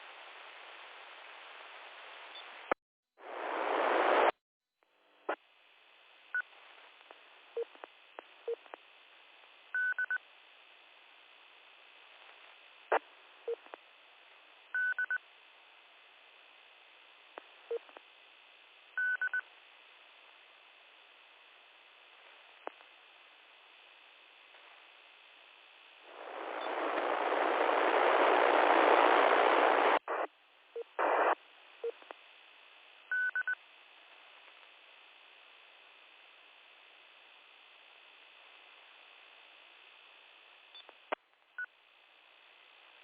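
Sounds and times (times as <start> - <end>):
radio hiss: 0.0 - 4.4, 15.4 - 43.0.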